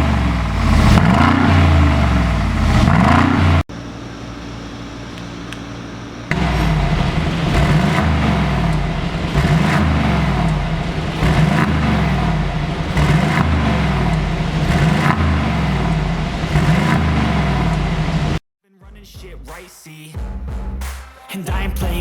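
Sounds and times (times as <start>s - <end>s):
car engine revving: 0.0s - 3.7s, 6.3s - 18.4s.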